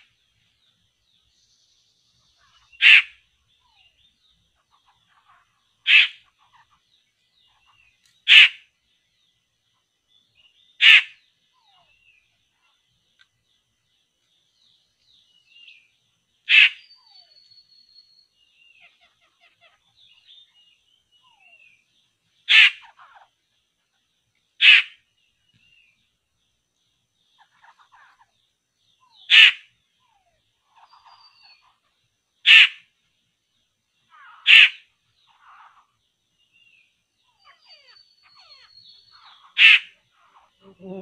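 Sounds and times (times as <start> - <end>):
harsh bird calls: 2.1 - 9.4, 10.2 - 12.8, 15.3 - 23.5, 24.5 - 26.0, 27.2 - 33.1, 33.8 - 41.0
faint bird chirps and whistles: 14.6 - 23.3, 27.3 - 32.9, 34.0 - 41.0.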